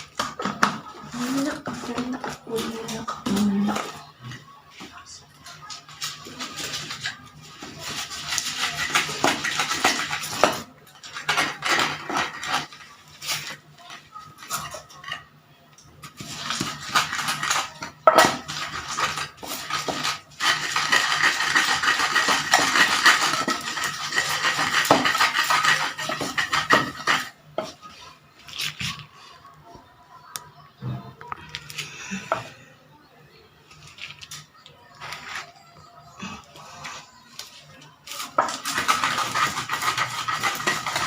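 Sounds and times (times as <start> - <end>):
utensils clattering on dishes: 5.6 - 15.3, 16.0 - 28.0, 38.0 - 41.0.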